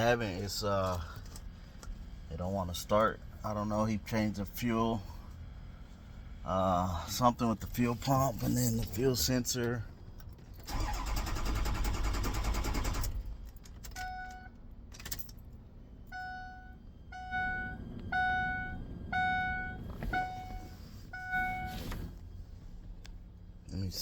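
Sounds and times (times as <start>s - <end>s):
starter cranking engine: 10.6s - 13.3s
dashboard warning chime: 13.9s - 14.6s, 16.1s - 22.1s.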